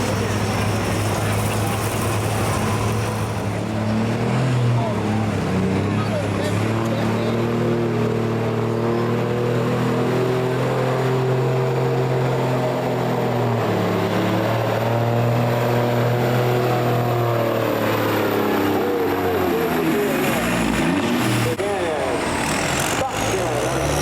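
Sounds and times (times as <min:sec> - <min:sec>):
vehicle engine under load: 0:00.0 - 0:24.0.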